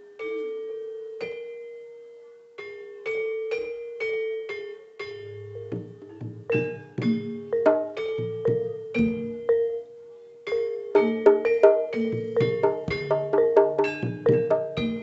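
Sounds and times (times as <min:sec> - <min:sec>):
metallophones ringing notes: 0:00.0 - 0:15.0
deep low gamelan tones: 0:05.0 - 0:15.0.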